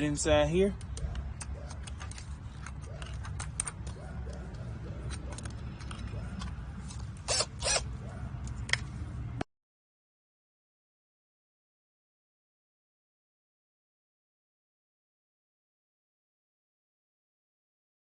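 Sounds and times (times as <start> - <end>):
tool clicking and scraping screws: 0.8 - 8.9.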